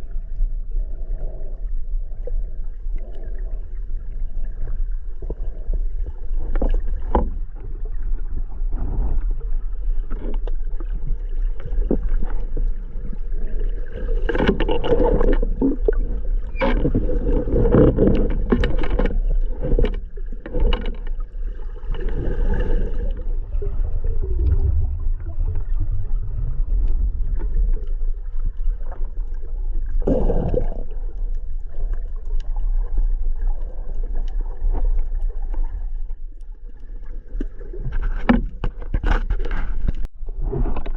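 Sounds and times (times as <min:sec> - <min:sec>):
low underwater rumble: 0:00.0 - 0:40.9
bubbling: 0:00.8 - 0:38.3.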